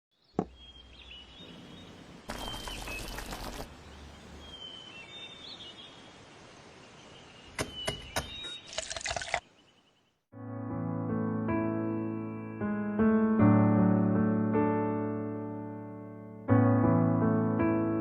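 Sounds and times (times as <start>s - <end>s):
small birds chirping: 0.1s - 10.2s.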